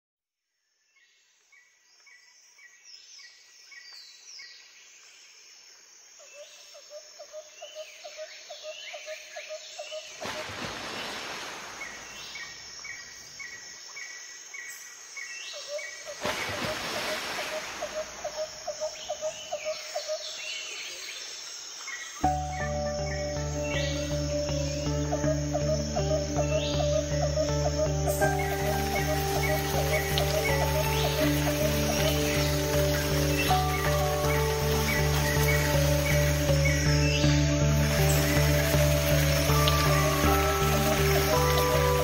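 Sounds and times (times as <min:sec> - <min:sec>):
birds chirping and whistling: 0:22.2 - 0:42.0
high insect buzz: 0:22.2 - 0:42.0.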